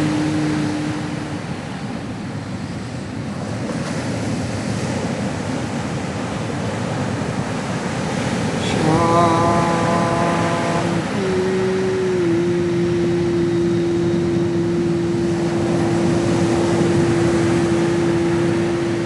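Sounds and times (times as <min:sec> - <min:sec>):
long held tone: 0:00.0 - 0:02.1, 0:08.6 - 0:19.0
ocean waves rushing: 0:00.0 - 0:19.0.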